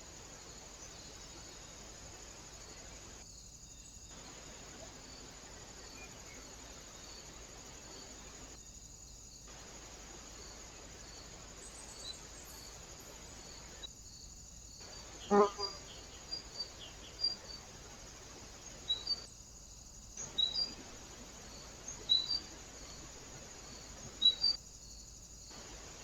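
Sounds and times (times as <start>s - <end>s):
steady hiss: 0.0s - 26.0s
high insect chirring: 12.4s - 25.0s.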